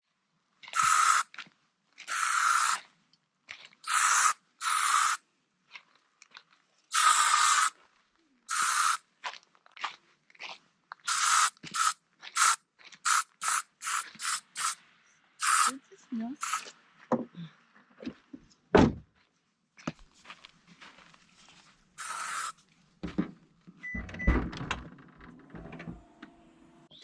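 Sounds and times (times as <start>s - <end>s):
aerosol spray hissing: 0.8s - 1.2s, 2.1s - 2.8s, 3.9s - 5.2s, 6.9s - 7.7s, 8.5s - 9.0s, 11.1s - 14.8s, 15.4s - 15.8s, 16.4s - 16.7s, 22.0s - 22.6s.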